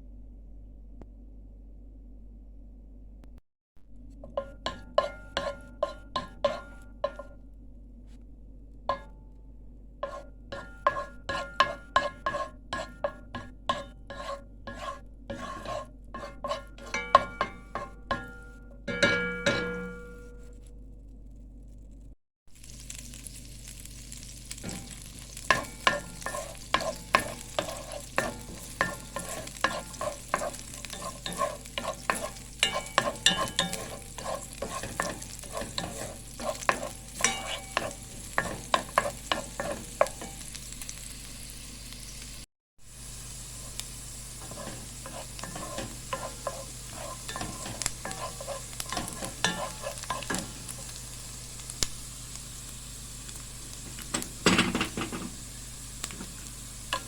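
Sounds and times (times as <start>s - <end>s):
spoon scraping metal pan: 4.2s - 7.4s, 10.0s - 20.5s, 24.6s - 40.6s, 44.4s - 51.0s, 56.2s - 57.0s
food sizzling in a pan: 4.3s - 7.4s, 10.0s - 20.2s, 22.5s - 57.0s.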